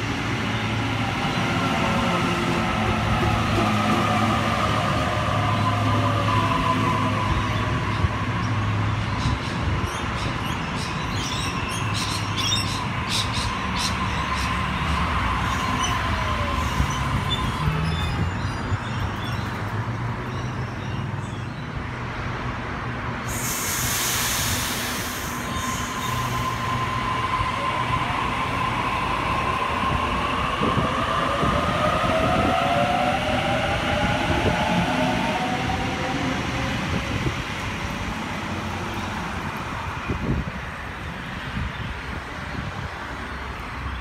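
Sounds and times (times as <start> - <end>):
electric trains rumbling past: 0.0 - 44.0
sudden hiss: 23.3 - 26.5.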